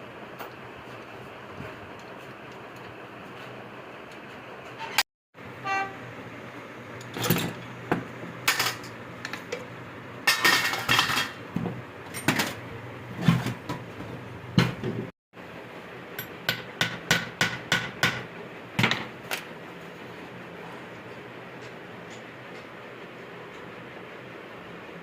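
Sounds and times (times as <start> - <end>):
steady background hum: 0.0 - 25.0
short vehicle horn toot: 5.6 - 6.1.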